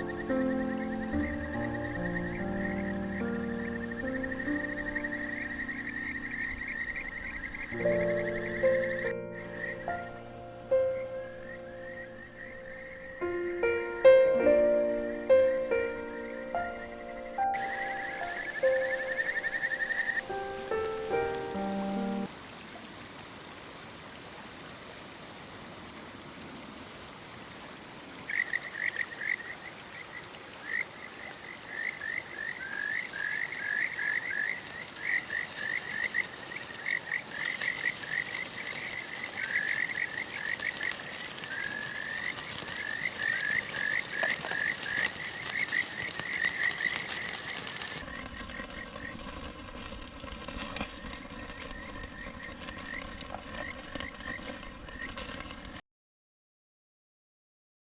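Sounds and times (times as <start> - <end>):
frog chirping: 0.0 - 10.2, 10.8 - 13.7, 16.1 - 22.3, 28.3 - 49.2
mountain stream rushing: 17.4 - 55.8.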